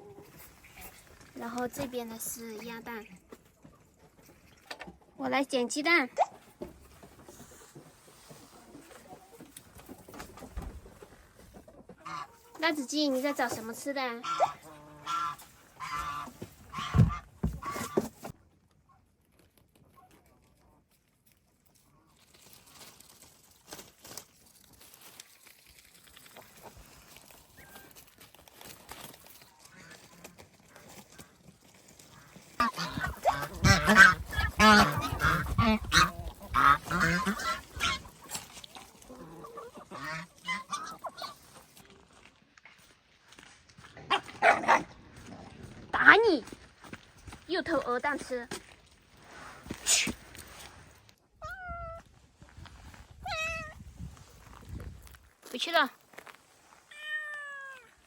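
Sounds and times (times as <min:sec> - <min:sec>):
geese honking: 0:14.2 - 0:18.0, 0:32.2 - 0:38.1.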